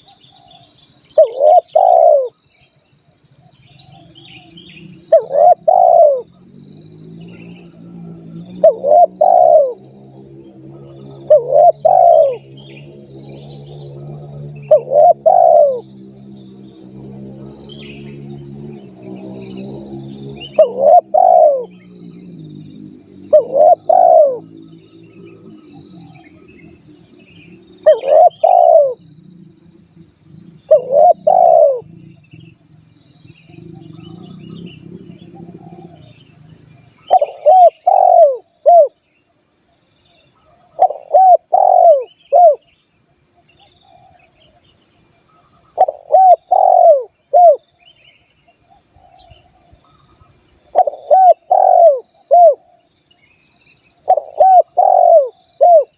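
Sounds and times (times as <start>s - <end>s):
dove cooing: 0.0s - 2.4s, 3.7s - 6.4s, 7.3s - 16.0s, 17.3s - 22.2s, 23.2s - 26.7s, 27.4s - 29.1s, 30.5s - 32.0s, 33.5s - 36.2s, 37.0s - 39.0s, 40.5s - 42.6s, 43.8s - 44.3s, 45.7s - 47.7s, 50.7s - 52.8s, 54.0s - 55.9s.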